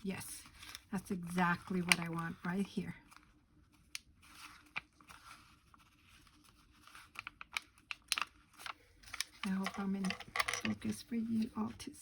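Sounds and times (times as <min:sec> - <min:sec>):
paper rustling: 0:00.4 - 0:10.1.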